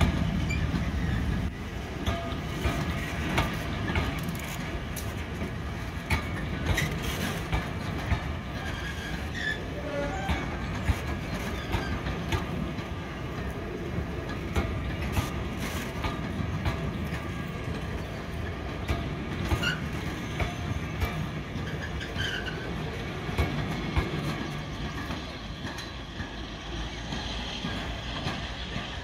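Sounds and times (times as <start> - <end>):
train rumbling: 0.0 - 29.0
wheels clicking over rail joints: 0.0 - 29.0
high wheel squeals: 8.6 - 10.6, 21.6 - 22.8.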